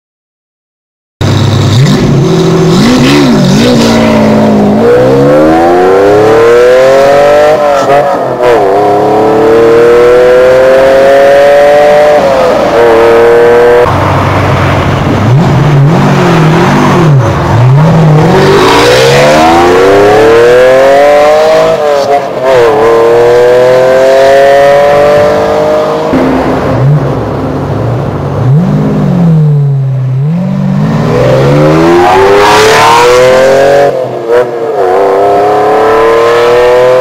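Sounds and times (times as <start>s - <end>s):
car engine revving: 1.2s - 37.0s.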